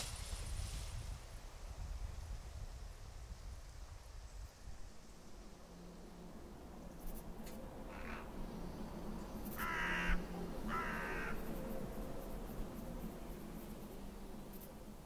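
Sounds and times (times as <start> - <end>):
bird cawing harshly: 7.9 - 8.3, 9.6 - 11.4.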